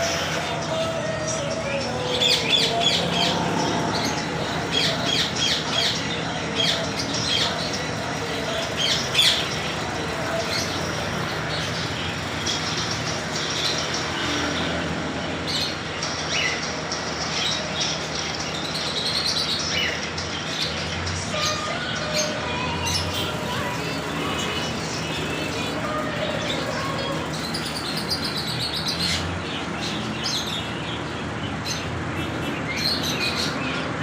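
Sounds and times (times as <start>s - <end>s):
parrots squawking: 0.0s - 14.4s
steady background noise: 0.0s - 34.0s.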